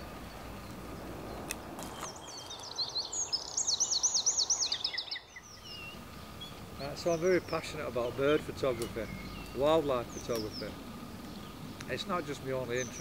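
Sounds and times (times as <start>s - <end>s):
outdoor background hiss: 0.0s - 13.0s
songbird singing: 0.0s - 13.0s.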